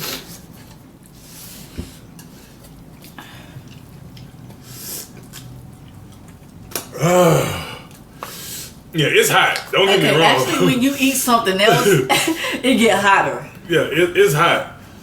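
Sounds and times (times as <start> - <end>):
vocal exclamation: 6.9 - 7.9.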